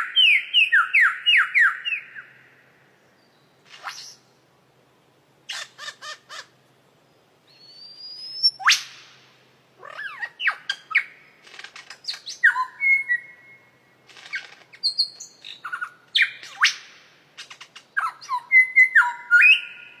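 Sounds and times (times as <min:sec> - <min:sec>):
bird calling: 0:05.5 - 0:06.6, 0:09.8 - 0:20.0.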